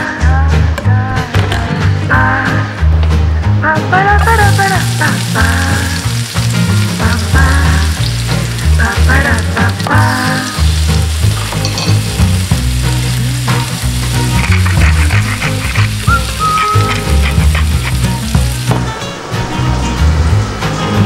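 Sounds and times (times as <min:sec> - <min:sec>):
background music with bass: 0:00.0 - 0:21.0
shallots and garlic sizzling: 0:04.1 - 0:20.3
butter bubbling: 0:12.1 - 0:18.7.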